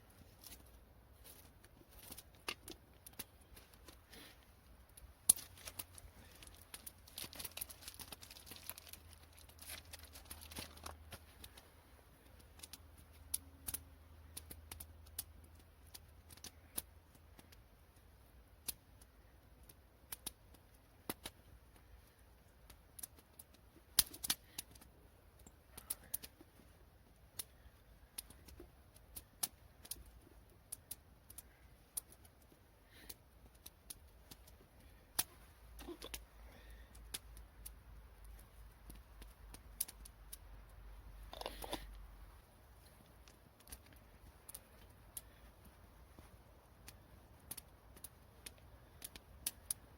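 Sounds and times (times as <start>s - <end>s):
rustling: 0.0s - 17.6s
sharp clicks and crackles: 0.3s - 49.9s.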